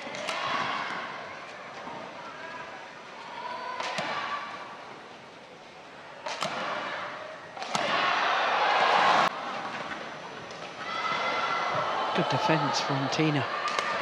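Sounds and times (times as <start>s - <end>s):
crowd noise: 0.0s - 14.0s
racket hitting shuttlecock: 3.8s - 4.2s, 6.2s - 7.0s, 7.6s - 8.2s
crowd cheering: 6.2s - 9.7s, 10.6s - 14.0s.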